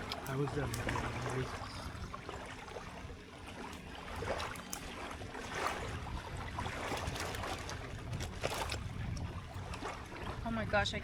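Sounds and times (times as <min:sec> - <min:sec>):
wind rumbling on microphone: 0:00.0 - 0:03.2, 0:04.0 - 0:11.0
steady outdoor wash: 0:00.0 - 0:11.0.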